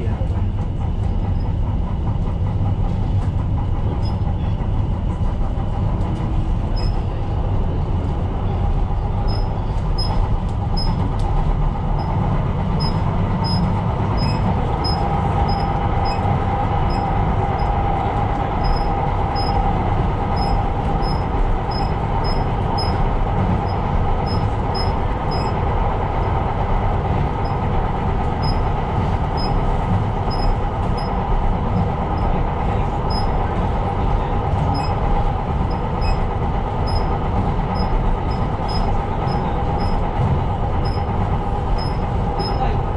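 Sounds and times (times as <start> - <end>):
train wheels rumbling on rail: 0.0 - 42.9
mid-pitched whine: 11.8 - 42.7.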